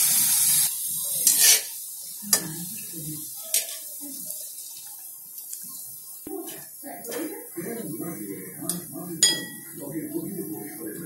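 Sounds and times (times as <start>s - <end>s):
food sizzling in hot oil: 0.0s - 11.0s
metal spoon clinking on pan: 8.7s - 9.7s.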